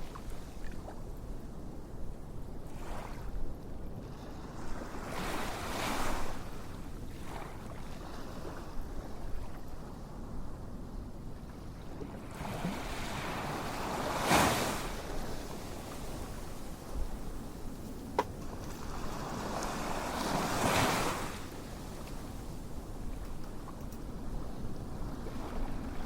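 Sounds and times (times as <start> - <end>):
ocean waves washing in: 12.2 - 17.0, 17.6 - 22.0.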